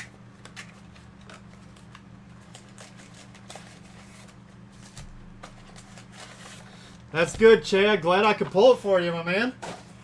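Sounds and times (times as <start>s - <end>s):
card packs clicking and rustling: 0.0s - 7.6s
steady low hum: 0.0s - 10.0s.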